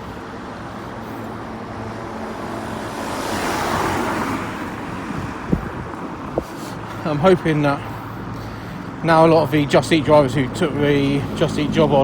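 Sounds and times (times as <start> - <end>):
vehicle passing close by: 0.0 - 8.4
road traffic noise: 0.0 - 12.0.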